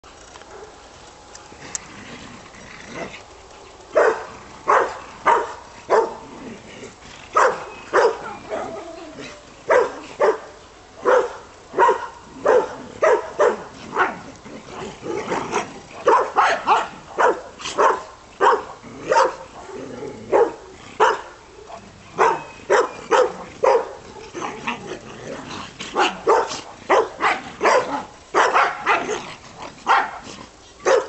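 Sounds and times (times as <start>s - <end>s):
dog barking: 4.0s - 6.2s, 7.4s - 8.7s, 9.7s - 14.2s, 16.0s - 24.0s, 26.0s - 29.2s, 29.8s - 30.2s.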